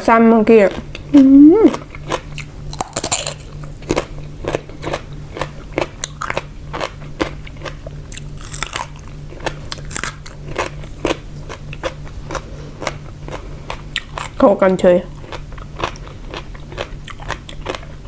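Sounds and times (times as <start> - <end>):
faint low hum: 0.0 - 18.0
crunchy chewing: 0.5 - 18.0.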